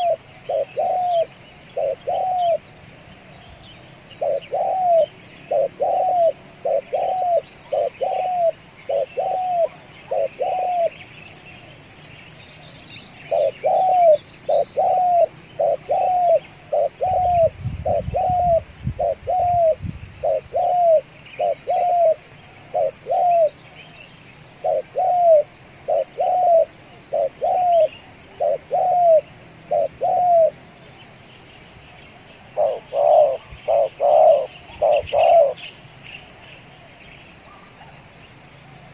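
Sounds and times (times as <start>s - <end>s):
dove cooing: 0.0s - 2.8s, 4.2s - 11.0s, 13.2s - 23.6s, 24.6s - 30.6s, 32.5s - 35.7s.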